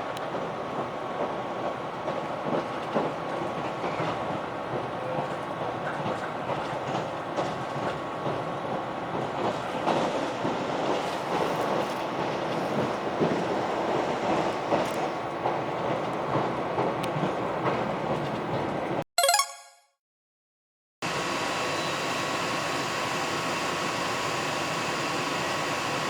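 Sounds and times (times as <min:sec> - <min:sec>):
train rumbling on board: 0:00.0 - 0:19.0.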